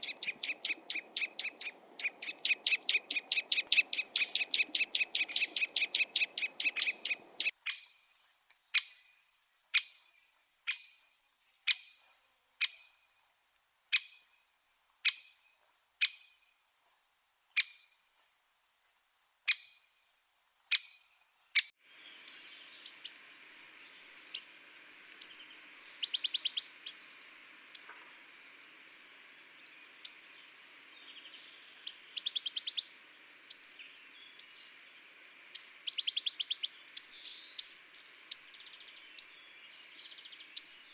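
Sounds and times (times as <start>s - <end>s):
bird chirps and trills: 0.0s - 7.5s, 21.9s - 40.9s.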